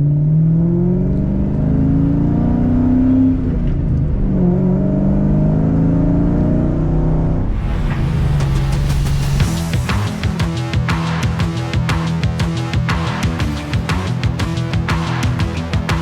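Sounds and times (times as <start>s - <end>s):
car engine revving: 0.0s - 16.0s
guitar music: 7.5s - 16.0s.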